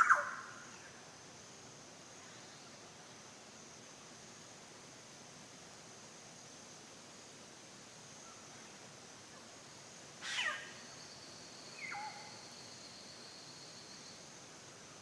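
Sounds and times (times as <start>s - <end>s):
forest ambience hiss: 0.0s - 15.0s
high insect-like tone: 9.8s - 14.4s.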